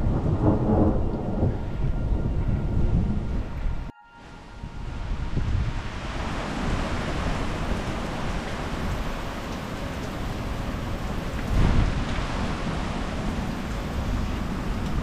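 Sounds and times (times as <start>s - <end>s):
low thunder rumble: 0.0s - 3.9s, 4.6s - 15.0s
rain falling: 4.9s - 15.0s.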